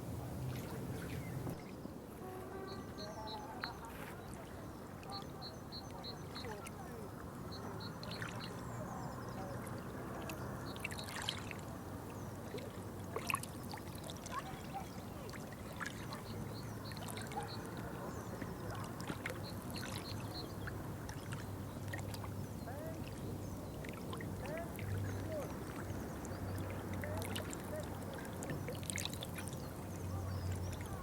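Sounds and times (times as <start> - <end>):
water trickling and lapping: 0.0 - 31.0
water drips: 9.5 - 31.0.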